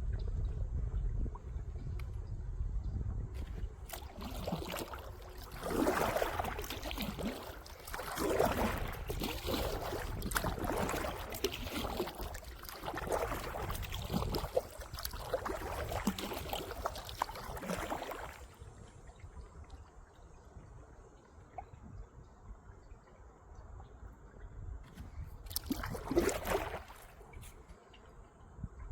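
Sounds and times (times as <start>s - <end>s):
water drips and clicks: 3.4s - 18.4s, 24.9s - 28.1s
kayak paddle splashing: 3.4s - 19.6s, 24.9s - 28.2s.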